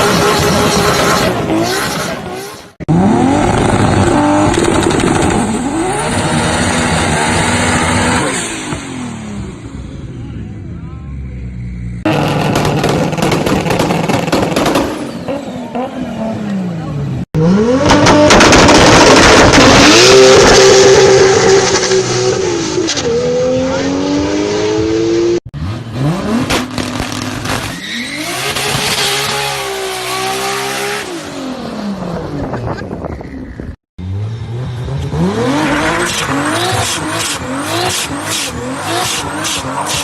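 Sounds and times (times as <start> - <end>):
car engine revving: 0.0 - 10.2, 11.3 - 32.6, 34.0 - 40.0.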